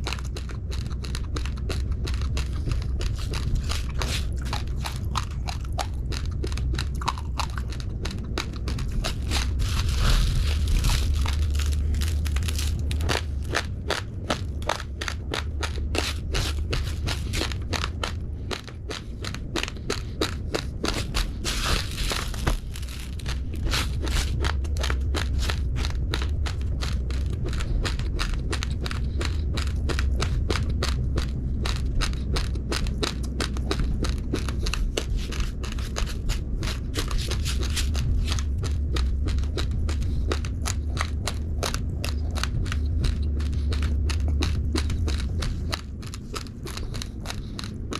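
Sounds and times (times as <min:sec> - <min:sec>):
crunching raw rice: 0:00.0 - 0:47.9
steady low hum: 0:00.0 - 0:47.9.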